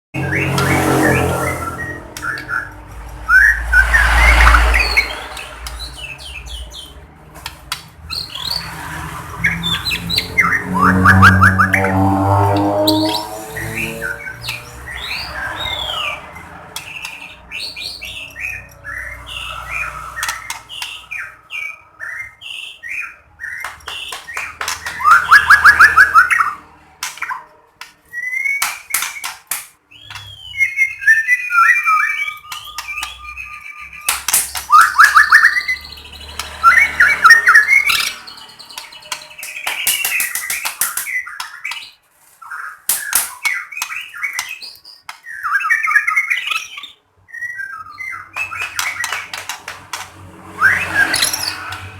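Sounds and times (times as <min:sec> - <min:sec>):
bird whistled song: 0:00.2 - 0:07.0, 0:08.1 - 0:08.7, 0:09.4 - 0:12.0, 0:16.8 - 0:49.6, 0:50.5 - 0:51.9
bird clicking calls: 0:23.5 - 0:30.3, 0:32.4 - 0:41.9, 0:42.8 - 0:45.9, 0:48.1 - 0:51.9
bird rattling trills: 0:36.4 - 0:41.8, 0:48.0 - 0:51.9.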